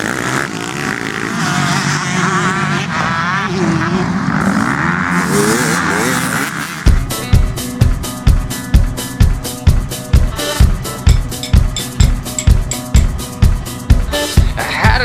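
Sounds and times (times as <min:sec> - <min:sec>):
dirt bike engines revving: 0:00.0 - 0:15.0
music with kick-drum beat: 0:06.9 - 0:15.0.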